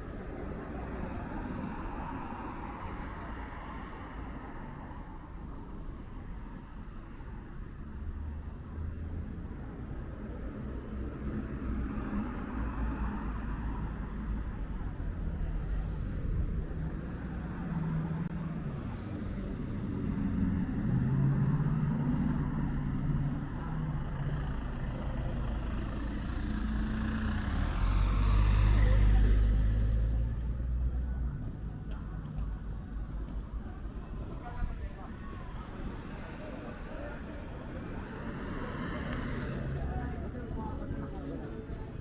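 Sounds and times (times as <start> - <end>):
car engines running: 15.7 - 41.6
vehicle passing loudly: 20.2 - 30.8.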